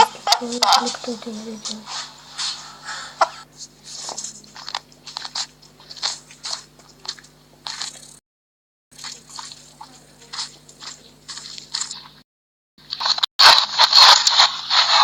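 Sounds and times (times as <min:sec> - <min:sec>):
steady low hum: 0:00.0 - 0:08.2, 0:08.9 - 0:12.2
crisp crunching: 0:03.8 - 0:08.2, 0:09.0 - 0:12.2, 0:12.9 - 0:15.0.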